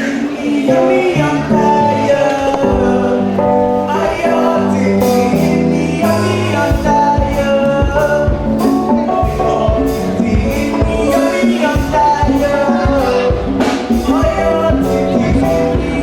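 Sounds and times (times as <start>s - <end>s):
gospel singing: 0.0s - 16.0s
held instrumental notes: 0.0s - 16.0s
drum beat: 5.0s - 16.0s.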